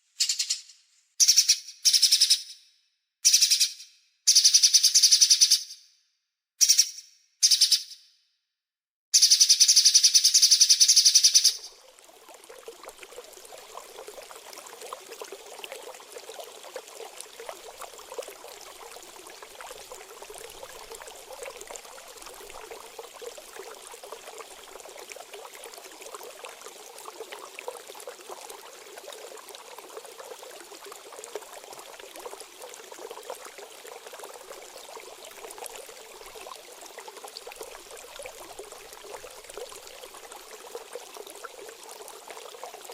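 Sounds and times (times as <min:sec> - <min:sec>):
trickle of running water: 0:09.2 - 0:42.9.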